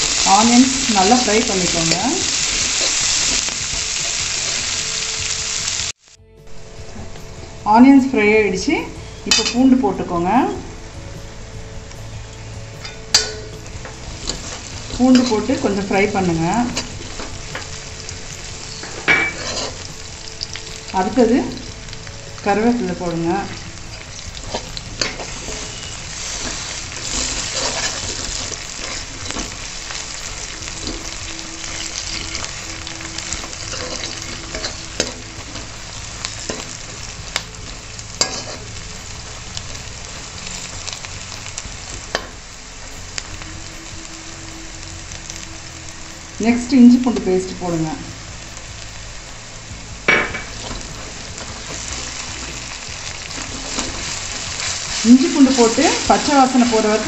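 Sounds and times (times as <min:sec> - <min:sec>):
onions sizzling in hot oil: 0:00.0 - 0:57.0
metal spoon stirring: 0:18.5 - 0:20.8, 0:23.6 - 0:39.7
metal spatula scraping pan: 0:18.6 - 0:20.8, 0:23.5 - 0:35.8, 0:38.2 - 0:38.8.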